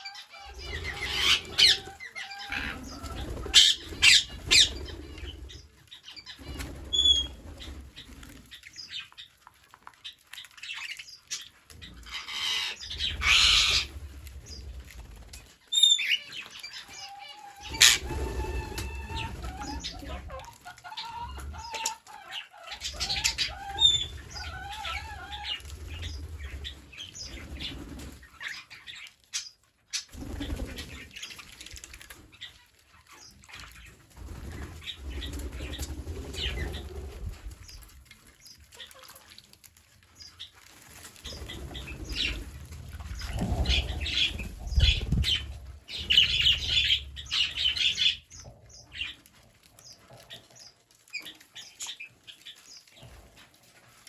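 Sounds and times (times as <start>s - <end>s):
parrot chirps and calls: 0.0s - 7.4s, 10.6s - 13.9s, 15.7s - 26.2s
parrots flapping wings: 0.5s - 5.6s, 6.2s - 8.6s, 12.0s - 16.7s, 17.6s - 20.6s, 22.8s - 28.6s, 30.0s - 39.2s, 40.3s - 48.4s.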